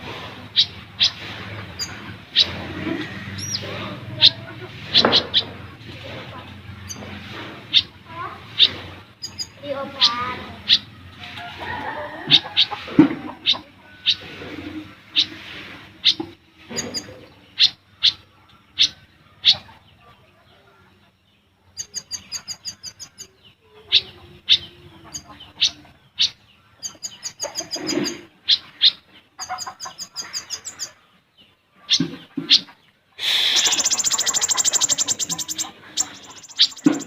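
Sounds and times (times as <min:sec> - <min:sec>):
bird rapid high twittering: 0:00.5 - 0:05.8, 0:06.5 - 0:11.1, 0:13.4 - 0:14.3, 0:16.0 - 0:19.6, 0:21.7 - 0:31.0, 0:31.9 - 0:37.0.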